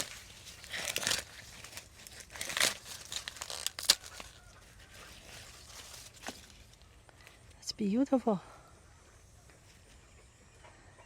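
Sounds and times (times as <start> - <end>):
rustling and tearing: 0.0 - 7.4.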